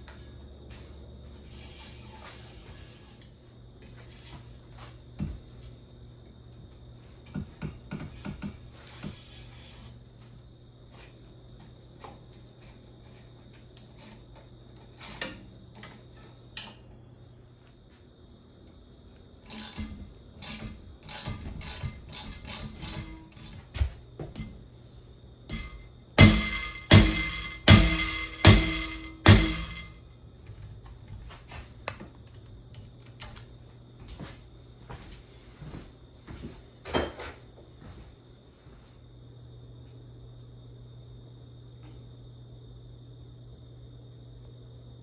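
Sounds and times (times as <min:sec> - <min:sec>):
metal tools clicking and clanking: 0:19.5 - 0:23.7
heavy knocks: 0:25.5 - 0:29.9.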